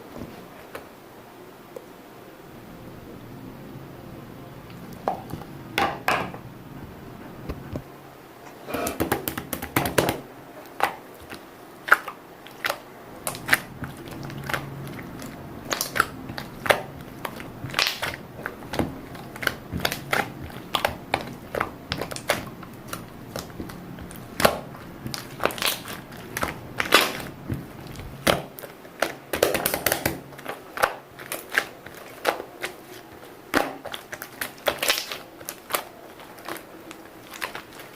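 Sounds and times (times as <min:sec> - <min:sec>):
low steady hum: 0:00.0 - 0:37.9
crinkling: 0:10.6 - 0:37.9.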